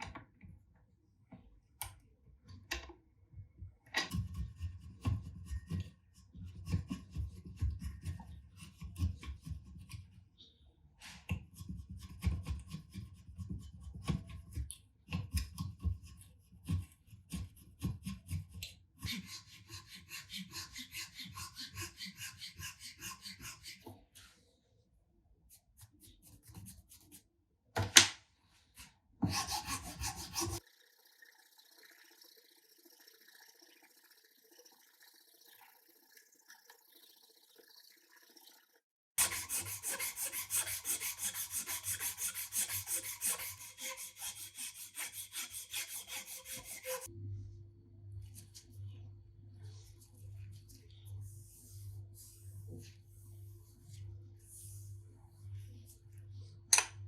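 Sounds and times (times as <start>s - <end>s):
sanding wood by hand: 29.2s - 30.6s, 39.2s - 47.1s.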